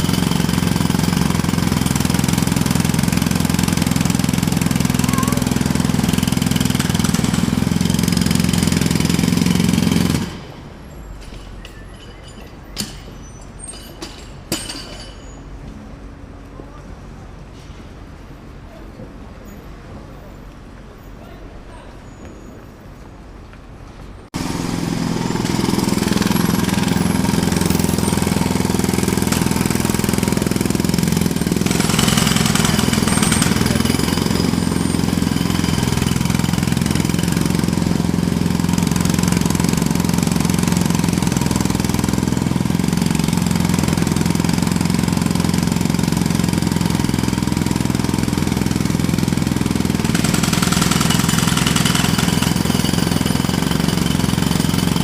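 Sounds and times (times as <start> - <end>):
jackhammer hammering: 0.0 - 10.6, 24.4 - 55.0.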